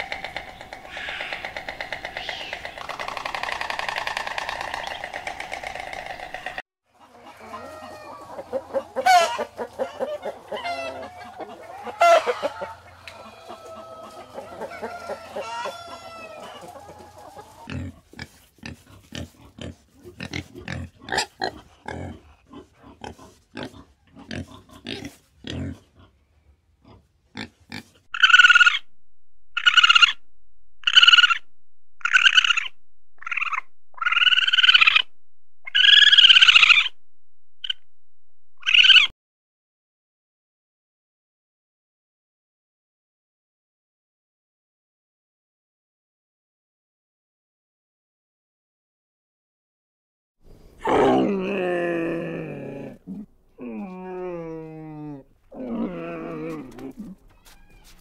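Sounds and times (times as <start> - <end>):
animal calls rising and falling: 0.0 - 6.6, 28.1 - 28.9, 29.5 - 37.0, 37.6 - 37.9, 38.5 - 39.1
high animal calls: 0.0 - 6.6, 27.7 - 28.9, 29.5 - 37.0, 37.6 - 37.9, 38.6 - 39.1, 50.8 - 58.0
boar grunting: 17.7 - 26.1, 50.8 - 57.2.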